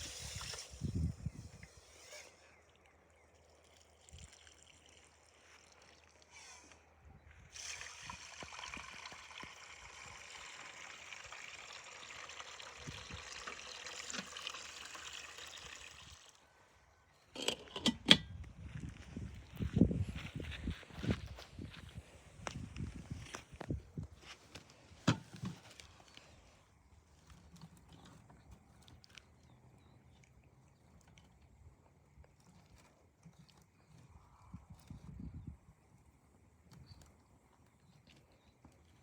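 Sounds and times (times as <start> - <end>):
water pouring in a trickle: 2.6 - 6.4, 7.5 - 16.4.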